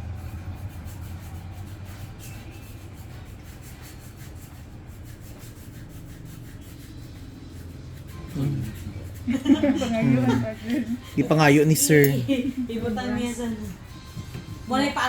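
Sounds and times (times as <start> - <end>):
tool scraping a toenail: 0.7 - 10.0.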